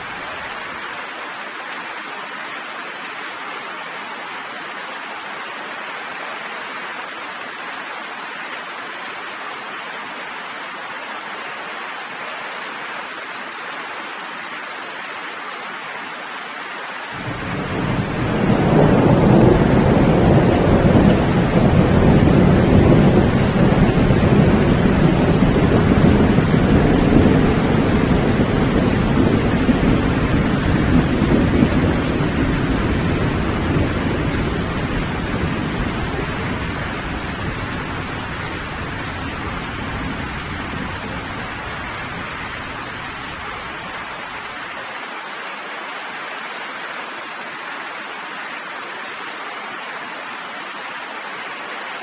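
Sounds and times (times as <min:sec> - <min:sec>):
steady rain hissing: 0:00.0 - 0:52.0
low rumble of thunder: 0:17.2 - 0:43.8.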